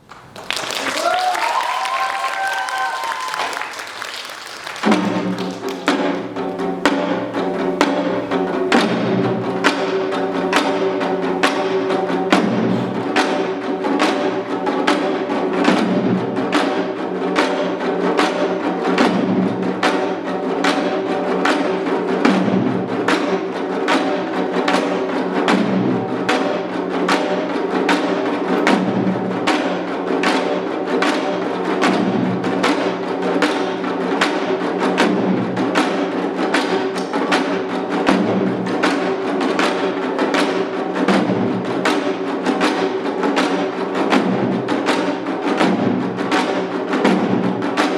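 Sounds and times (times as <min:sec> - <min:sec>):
deep booming drum strokes: 0:04.8 - 0:14.2.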